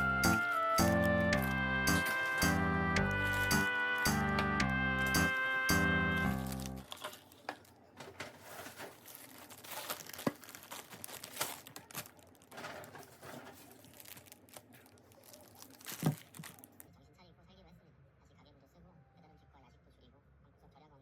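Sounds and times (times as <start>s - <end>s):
crinkling and rustling: 0.0s - 4.4s, 5.0s - 16.9s
background music: 0.0s - 6.9s.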